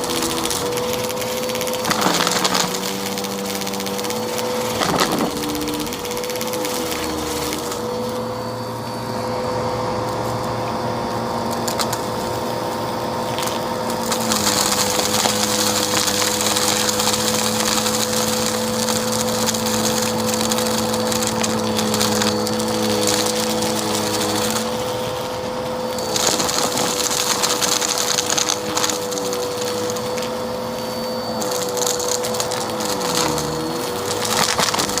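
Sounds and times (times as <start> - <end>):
debris crackling through vacuum: 0.0 - 9.0, 11.4 - 35.0
vacuum cleaner running: 0.0 - 35.0.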